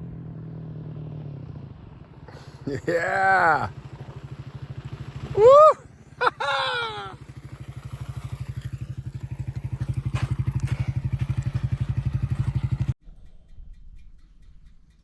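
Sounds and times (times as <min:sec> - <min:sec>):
motorcycle engine running: 0:00.0 - 0:13.0
person shouting: 0:02.7 - 0:03.7, 0:05.3 - 0:07.2.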